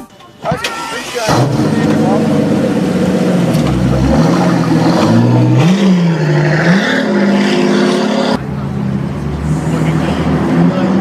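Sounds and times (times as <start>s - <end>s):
car engine revving: 0.6s - 11.0s.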